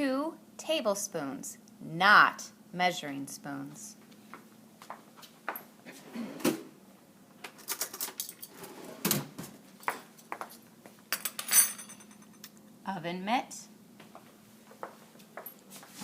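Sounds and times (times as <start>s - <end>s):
metal spoons clinking on hard surface: 11.2s - 12.5s.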